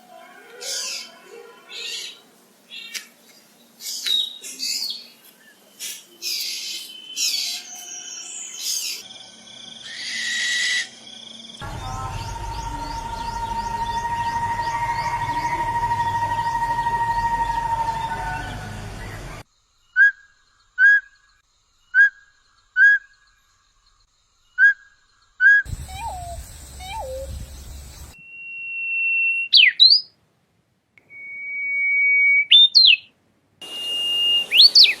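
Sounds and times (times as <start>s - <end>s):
held falling bird tone: 11.6s - 19.4s
lower falling bird notes: 11.6s - 19.4s
long bird whistles: 24.5s - 30.1s, 31.1s - 35.0s
short whistled bird notes: 33.6s - 35.0s.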